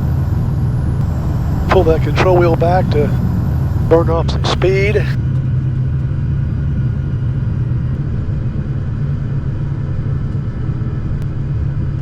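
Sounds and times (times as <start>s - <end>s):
twin piston aircraft engines droning: 0.0s - 5.2s.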